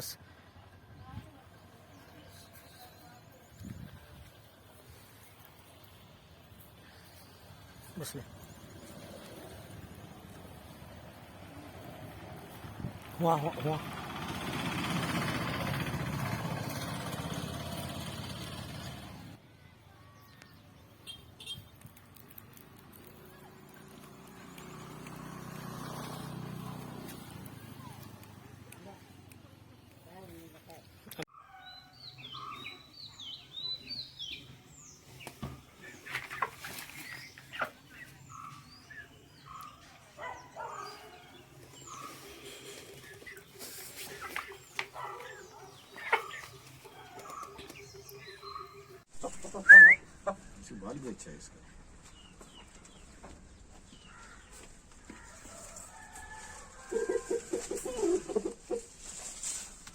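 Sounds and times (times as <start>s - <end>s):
birds chirping: 1.0s - 14.3s, 20.1s - 59.2s
chicken clucking: 42.8s - 50.4s, 55.4s - 59.6s.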